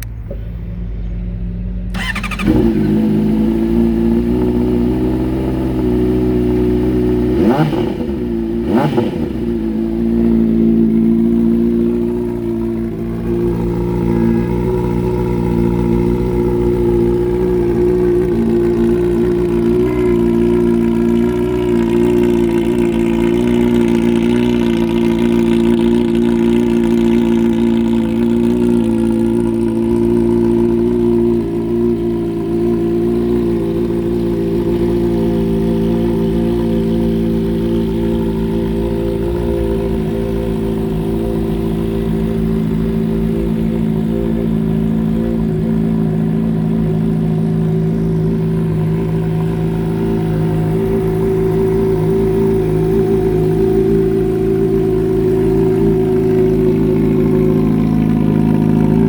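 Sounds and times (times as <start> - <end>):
motorcycle engine running steadily: 0.0 - 59.0.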